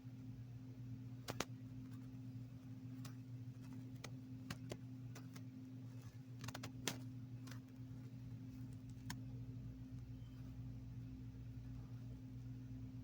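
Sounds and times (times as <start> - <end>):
steady low hum: 0.0 - 13.0
faint clicks and ticks: 1.2 - 10.2.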